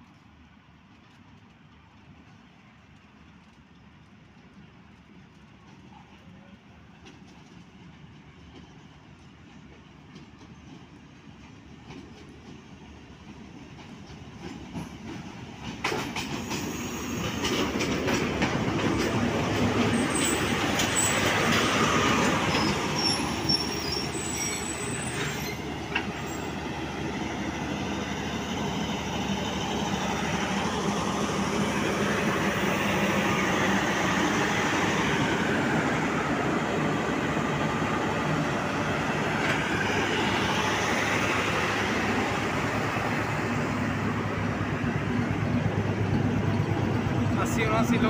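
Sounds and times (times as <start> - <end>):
diesel locomotive engine hum: 0.0 - 48.0
wheels rumbling on rails: 13.2 - 48.0
high wheel squeals: 22.5 - 26.6.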